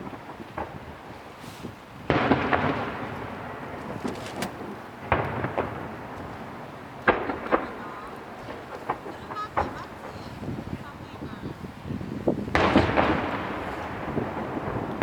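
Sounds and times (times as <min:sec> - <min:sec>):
fireworks pops: 0:00.0 - 0:10.8, 0:12.3 - 0:15.0
fireworks booming: 0:00.0 - 0:15.0
fireworks crackling: 0:00.0 - 0:15.0.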